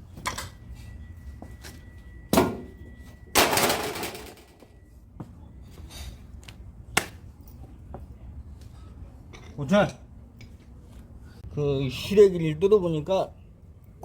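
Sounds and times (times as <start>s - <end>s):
metal clattering crash: 3.4s - 4.6s.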